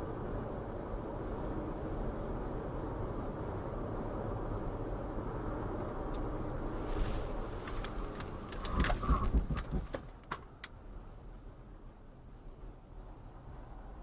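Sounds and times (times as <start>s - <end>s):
vehicle road and engine rumble: 0.0s - 14.0s
sharp knocks and low thumps: 8.6s - 10.4s.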